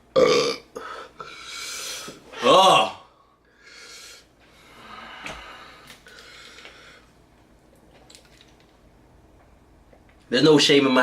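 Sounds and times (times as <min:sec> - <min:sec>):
man breathing hard: 0:00.8 - 0:02.2, 0:03.5 - 0:07.1.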